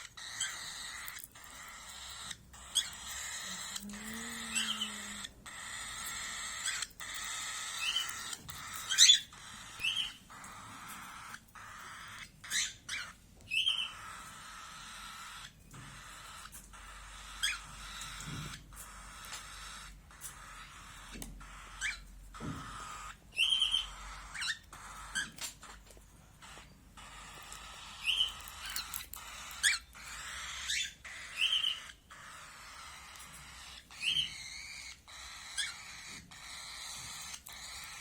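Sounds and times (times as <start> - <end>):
cage birds chirping: 0.0 - 38.0.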